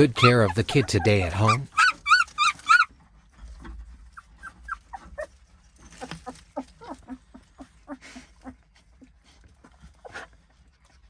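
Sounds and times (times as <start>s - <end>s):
dog whimpering: 0.0s - 2.9s, 4.2s - 5.3s, 6.0s - 8.6s.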